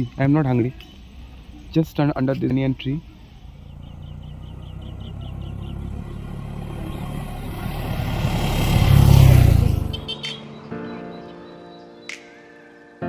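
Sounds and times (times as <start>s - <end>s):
motorcycle engine running: 3.3s - 10.1s.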